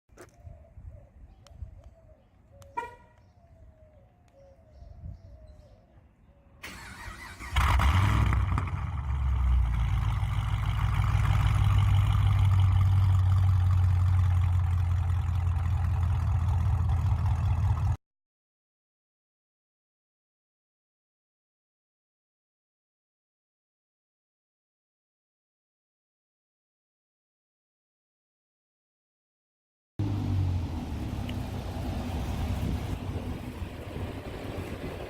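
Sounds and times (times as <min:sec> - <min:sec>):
car engine cranking and rumbling: 0:06.7 - 0:18.0, 0:30.0 - 0:35.0.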